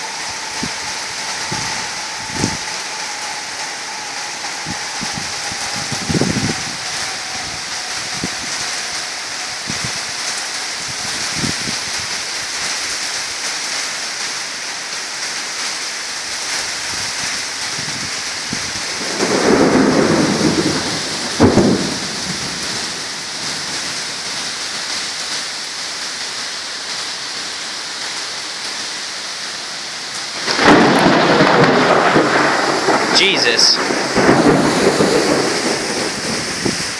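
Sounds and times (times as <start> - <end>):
thunder cracking: 0.0 - 12.0, 17.0 - 24.4, 30.2 - 36.9
thunder rumbling: 0.0 - 12.3, 16.7 - 24.6, 30.2 - 36.9
heavy rain pouring: 0.0 - 36.9
loud close thunderclap: 0.5 - 3.5, 4.5 - 8.9, 17.0 - 24.1, 30.3 - 36.9.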